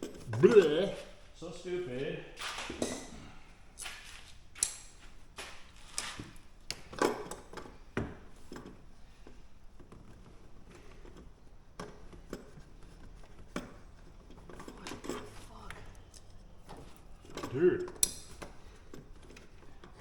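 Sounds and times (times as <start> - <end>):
clicks and knocks of tools: 3.8 - 6.1, 9.8 - 20.0.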